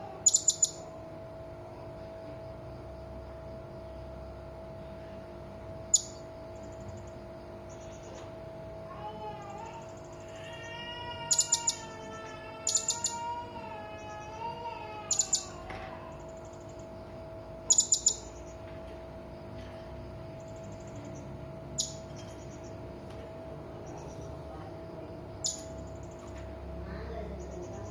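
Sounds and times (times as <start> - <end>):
parrot high chirps: 0.2 - 0.9, 11.3 - 12.0, 12.6 - 13.3, 15.0 - 15.6, 17.7 - 18.4, 25.4 - 25.8.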